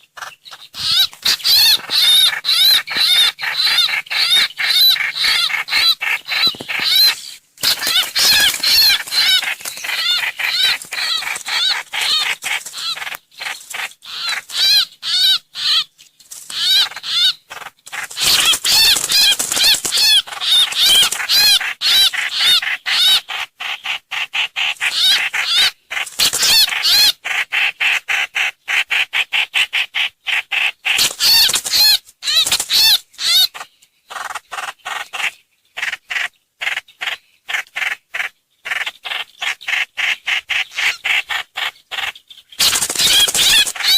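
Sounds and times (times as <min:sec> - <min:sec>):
bird chirping loudly: 0:00.0 - 0:15.9, 0:16.5 - 0:23.3, 0:24.6 - 0:27.2, 0:31.0 - 0:37.1, 0:37.8 - 0:43.9.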